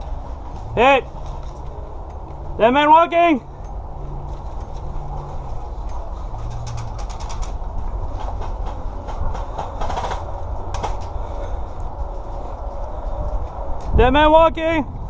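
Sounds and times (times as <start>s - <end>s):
wind rumble on microphone: 3.5s - 15.0s.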